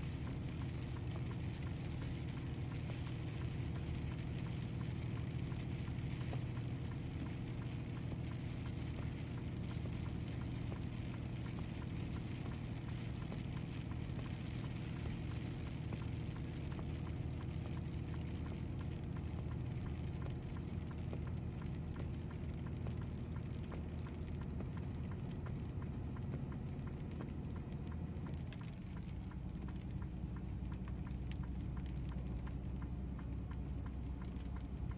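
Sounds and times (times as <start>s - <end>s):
rain pattering: 0.0s - 34.9s
truck engine and road drone: 0.0s - 34.9s.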